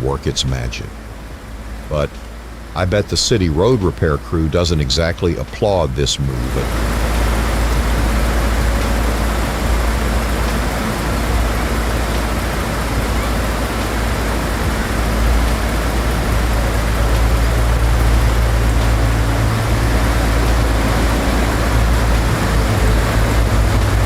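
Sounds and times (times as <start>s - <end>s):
heavy vehicle rumble: 0.0s - 24.0s
road traffic noise: 0.0s - 24.0s.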